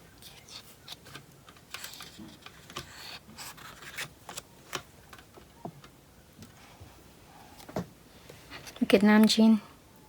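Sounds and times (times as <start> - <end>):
paper pages rustling: 0.2 - 5.3.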